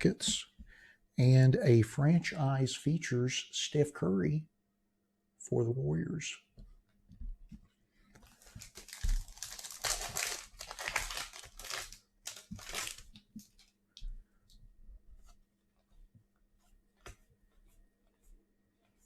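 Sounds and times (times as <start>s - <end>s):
plastic wrapper crinkling: 8.2s - 13.8s.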